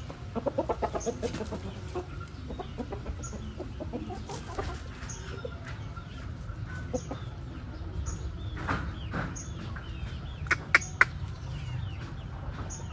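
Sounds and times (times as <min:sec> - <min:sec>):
chickens clucking: 0:00.0 - 0:12.9
sharp clicks: 0:10.5 - 0:11.4.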